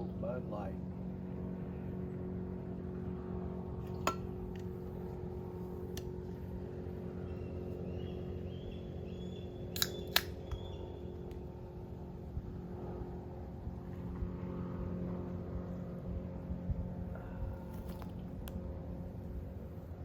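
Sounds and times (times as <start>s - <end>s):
low engine drone: 0.0s - 20.0s
sharp clicks: 9.7s - 10.7s.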